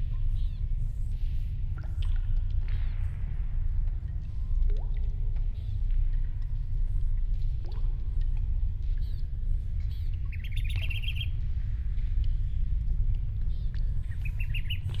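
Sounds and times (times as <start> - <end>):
steady low rumble: 0.0 - 15.0
small bird chirping: 9.9 - 11.3, 13.5 - 15.0.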